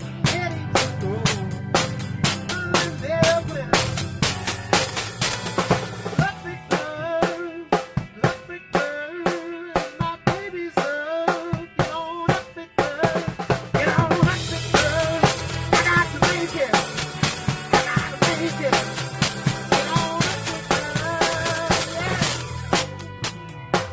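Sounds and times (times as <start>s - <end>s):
electric guitar lead: 0.0s - 7.2s, 13.4s - 23.9s
drum kit beating: 0.0s - 23.9s.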